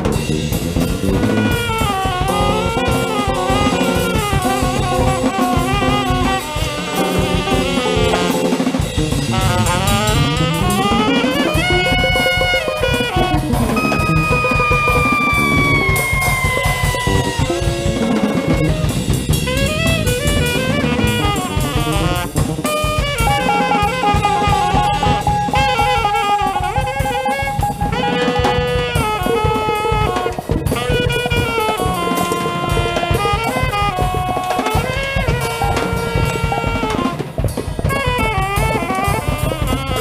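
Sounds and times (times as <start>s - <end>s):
drum kit steady beat: 0.0s - 40.0s
jazz band music: 0.0s - 40.0s
melodic lead line: 1.8s - 28.8s.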